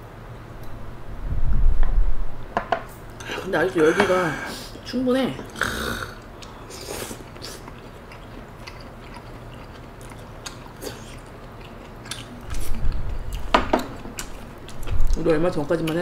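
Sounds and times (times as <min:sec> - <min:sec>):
close chewing and biting: 0:06.1 - 0:16.0.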